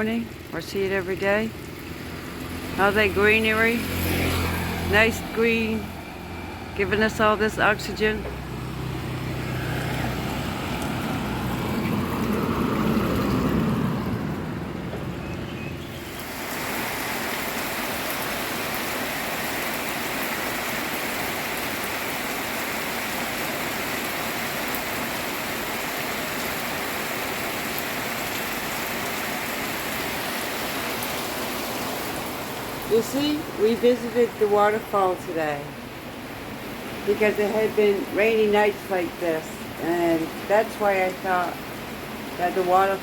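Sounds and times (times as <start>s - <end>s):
steady rain falling: 0.0s - 43.0s
motor vehicle passing: 1.6s - 19.6s.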